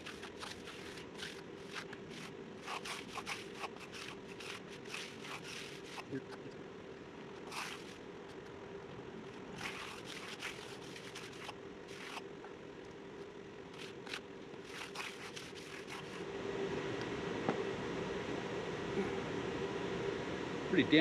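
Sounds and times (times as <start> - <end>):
trowel scraping concrete: 0.0 - 6.1, 7.4 - 8.0, 9.6 - 12.2, 13.7 - 16.2
steady low hum: 0.0 - 21.0.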